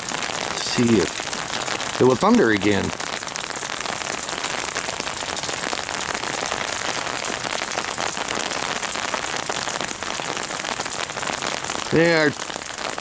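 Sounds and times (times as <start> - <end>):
rain on umbrella: 0.0 - 13.0.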